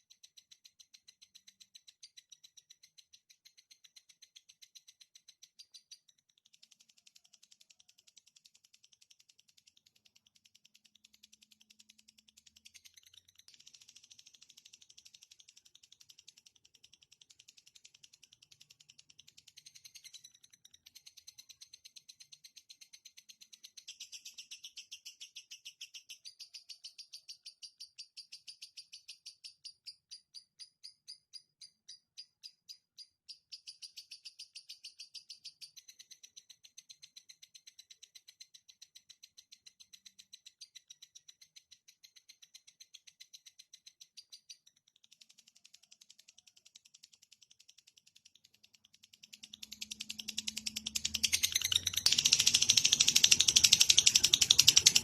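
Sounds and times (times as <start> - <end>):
songbird trill: 0.0 - 6.4, 17.6 - 44.8, 49.1 - 55.0
harsh rattling bird call: 49.3 - 55.0.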